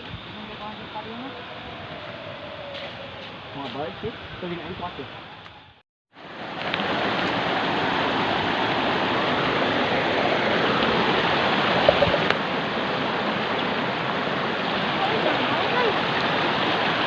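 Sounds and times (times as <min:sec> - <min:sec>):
running water rushing: 0:06.2 - 0:17.0.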